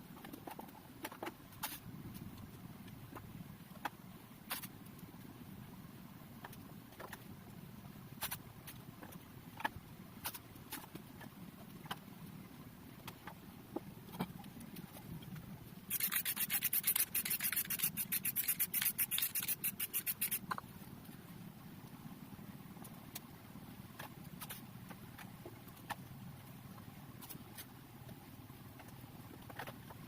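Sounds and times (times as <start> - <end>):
rapid rubbing strokes on surface: 15.9 - 20.6.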